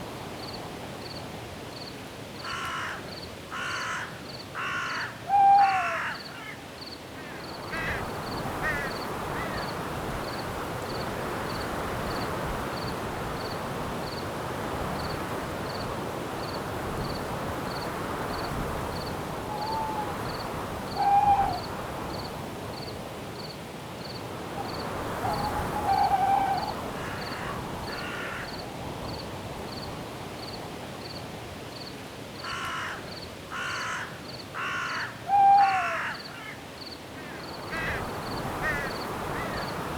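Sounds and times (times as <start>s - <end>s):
wind in trees: 0.0s - 39.9s
crows cawing: 2.4s - 6.6s, 7.2s - 9.6s, 25.2s - 28.6s, 32.4s - 39.7s
owl hooting: 5.3s - 6.2s, 19.5s - 21.7s, 24.6s - 27.6s, 35.3s - 36.2s
cricket chirping: 15.0s - 31.2s.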